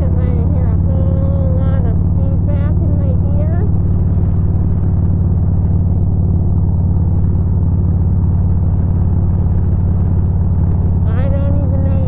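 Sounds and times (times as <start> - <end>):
motorcycle engine running: 0.0 - 12.0
wind rush on microphone: 0.0 - 12.0.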